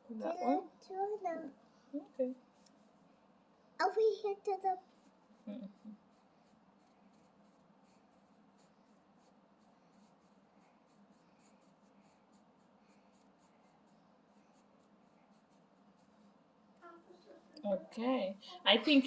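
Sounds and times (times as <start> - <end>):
low steady hum: 0.0 - 19.0
colouring tool scratching on paper: 4.8 - 16.4.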